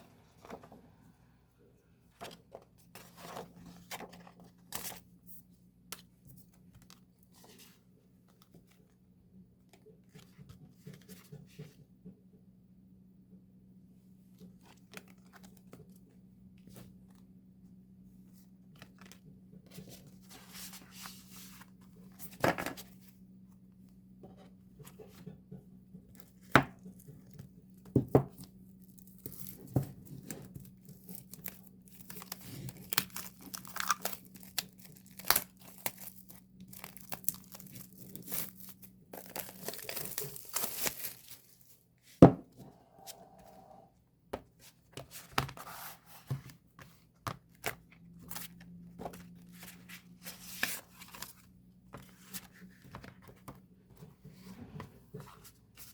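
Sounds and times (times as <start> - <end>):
packaging tearing and crinkling: 30.9 - 41.6.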